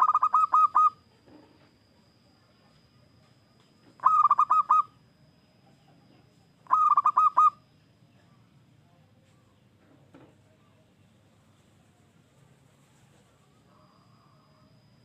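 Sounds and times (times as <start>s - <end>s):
zebra dove cooing: 0.0s - 1.1s, 4.0s - 5.0s, 6.6s - 7.6s.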